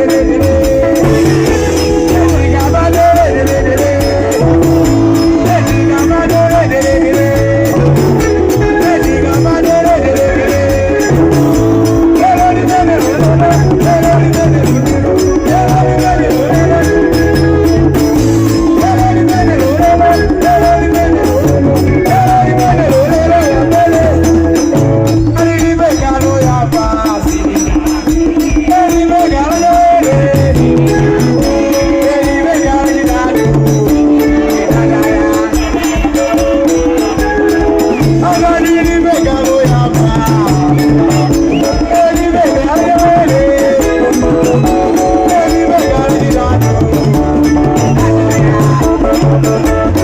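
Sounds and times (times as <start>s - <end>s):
bass line: 0.0s - 50.0s
fast rattling beat: 0.0s - 50.0s
live band music over pa: 0.0s - 50.0s.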